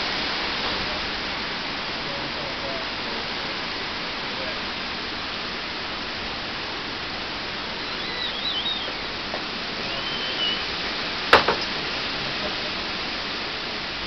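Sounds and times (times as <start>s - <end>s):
short high chirps: 7.8s - 9.0s, 9.8s - 10.7s
sharp knock: 11.3s - 11.7s.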